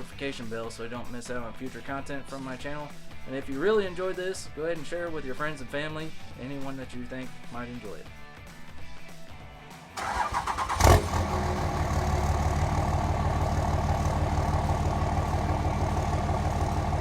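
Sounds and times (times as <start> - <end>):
engine idling: 10.0 - 17.0.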